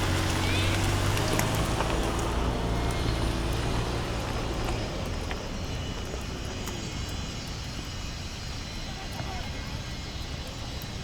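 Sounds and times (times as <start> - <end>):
campfire crackling and popping: 0.0 - 11.0
distant engine drone: 0.0 - 11.0.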